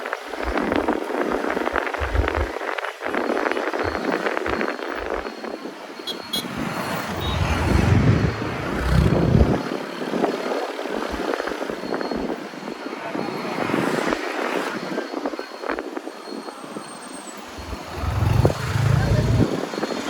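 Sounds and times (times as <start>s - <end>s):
road and wind noise: 0.0s - 20.0s
traffic: 0.0s - 20.0s
deep rumble: 7.1s - 9.6s, 17.5s - 19.5s.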